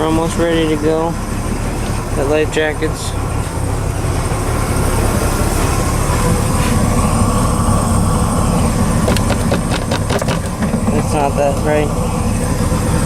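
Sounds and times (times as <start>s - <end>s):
boat engine rumbling: 0.0s - 13.0s
sharp knocks: 9.0s - 11.1s.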